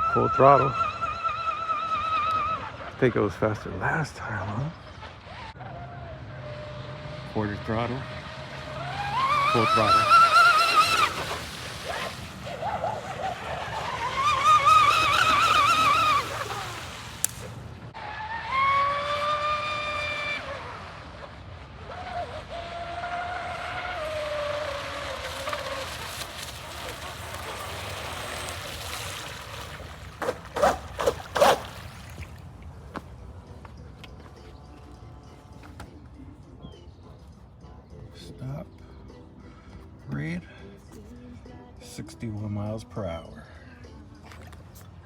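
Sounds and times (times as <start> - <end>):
toy speed boat motor whine: 0.0 - 32.0.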